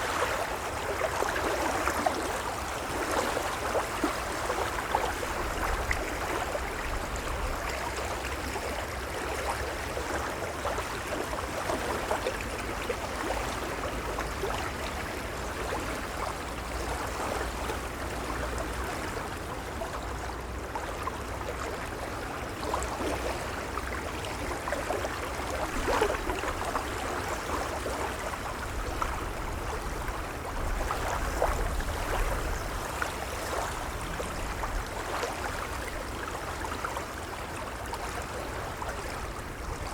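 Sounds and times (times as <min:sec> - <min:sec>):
waves lapping: 0:21.5 - 0:39.9.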